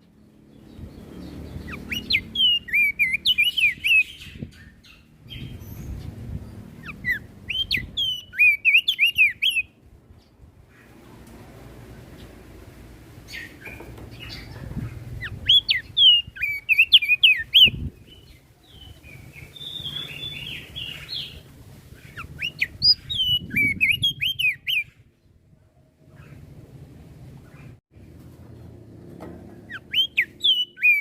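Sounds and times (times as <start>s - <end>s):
bird singing whistled notes: 0.7s - 6.1s, 6.8s - 9.8s, 15.1s - 21.4s, 22.0s - 25.2s, 29.7s - 31.0s.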